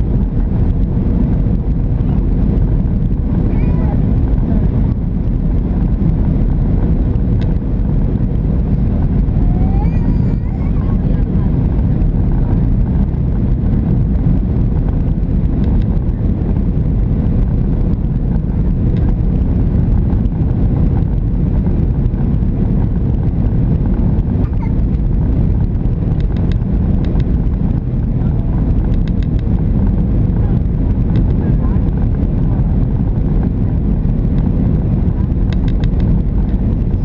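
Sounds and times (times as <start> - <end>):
jet engine cabin rumble: 0.0 - 37.0
faint clicks: 28.9 - 29.5, 35.5 - 36.6.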